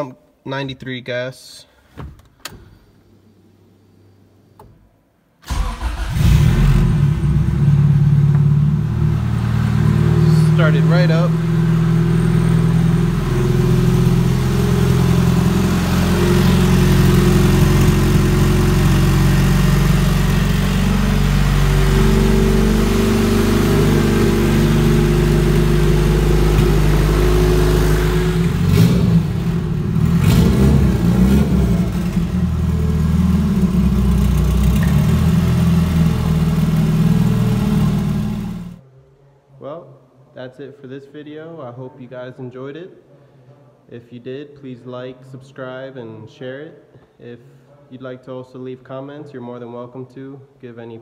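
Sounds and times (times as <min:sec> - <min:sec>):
car engine idling and revving: 0:05.8 - 0:38.8.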